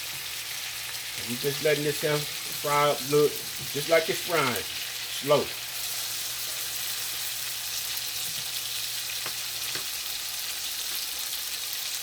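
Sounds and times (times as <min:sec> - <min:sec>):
steaks sizzling in butter: 0:00.0 - 0:12.0
faint pops of frying: 0:08.2 - 0:10.2.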